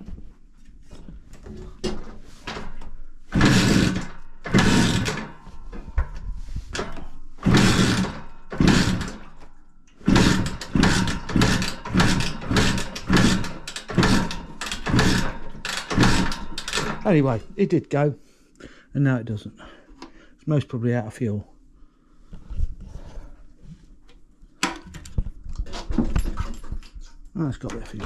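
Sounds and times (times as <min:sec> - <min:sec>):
motorcycle being kick-started: 0:02.5 - 0:05.4, 0:06.8 - 0:09.4, 0:10.0 - 0:17.2
two-stroke engine firing: 0:03.3 - 0:05.3, 0:07.4 - 0:09.2, 0:10.0 - 0:17.3.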